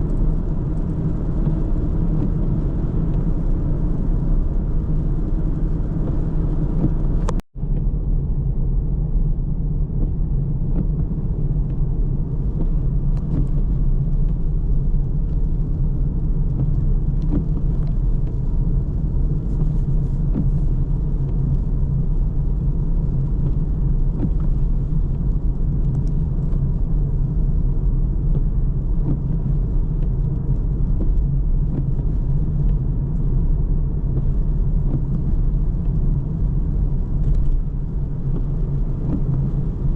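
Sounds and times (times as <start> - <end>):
car engine driving: 0.0 - 39.9
tyre road noise: 0.0 - 39.9.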